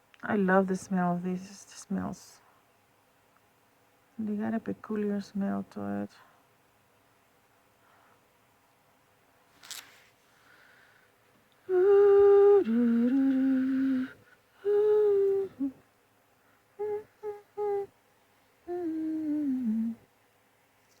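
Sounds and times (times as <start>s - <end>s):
person humming a tune: 11.6s - 15.8s, 16.8s - 17.9s, 18.7s - 20.1s.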